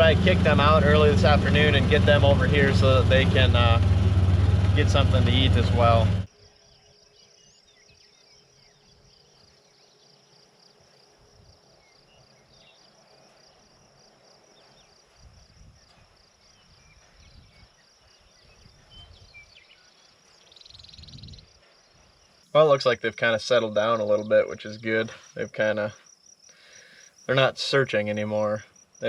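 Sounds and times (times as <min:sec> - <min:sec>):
low rumbles: 0:00.0 - 0:06.3
insects chirping: 0:00.0 - 0:29.0.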